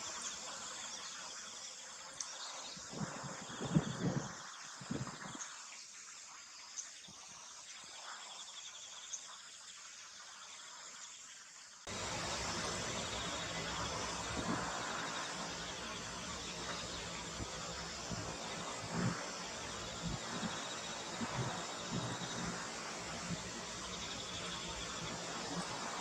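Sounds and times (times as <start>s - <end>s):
crickets trilling: 0.0s - 5.6s, 11.9s - 26.0s
steady rushing noise: 11.9s - 26.0s.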